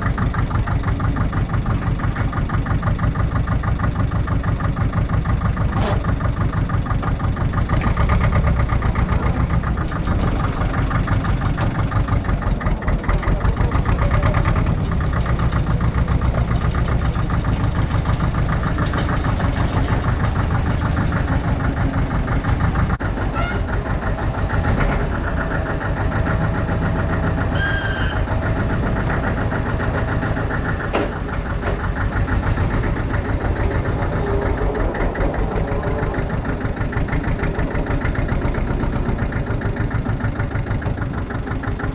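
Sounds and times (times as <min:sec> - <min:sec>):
tractor diesel engine running: 0:00.0 - 0:41.9
high squeak: 0:23.3 - 0:23.7, 0:27.5 - 0:28.3.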